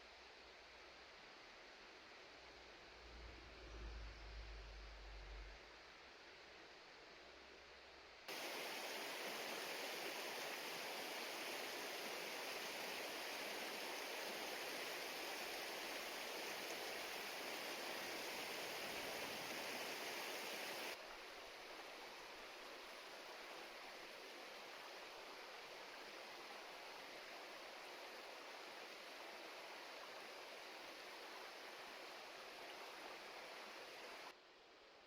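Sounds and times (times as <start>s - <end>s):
river water rushing: 8.3s - 21.0s.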